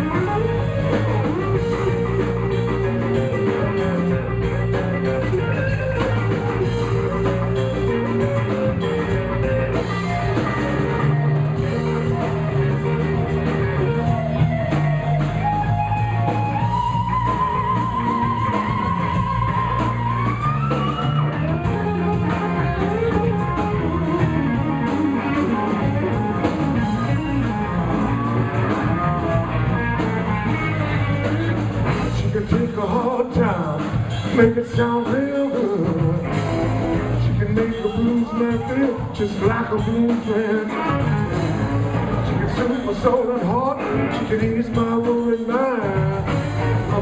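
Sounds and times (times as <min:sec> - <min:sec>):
lead guitar solo: 0:00.0 - 0:32.2, 0:35.8 - 0:39.2
blues band playing: 0:00.0 - 0:47.0.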